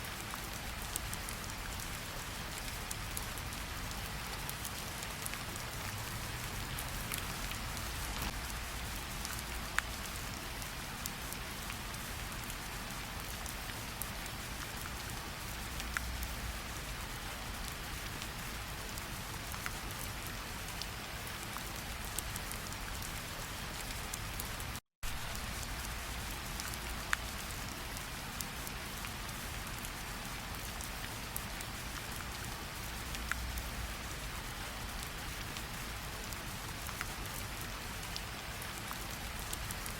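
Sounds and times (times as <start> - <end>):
steady rainfall hiss: 0.0 - 39.9
raindrops ticking: 0.5 - 10.3.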